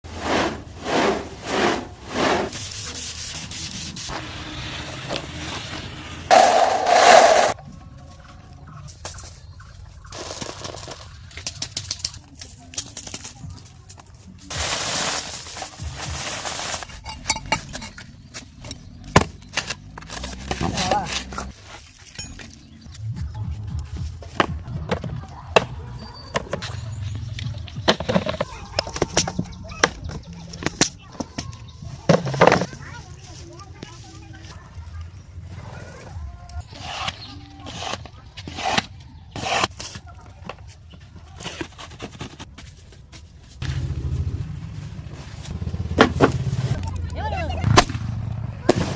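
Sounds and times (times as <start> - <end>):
rhythmic rubbing strokes: 6.3 - 7.6.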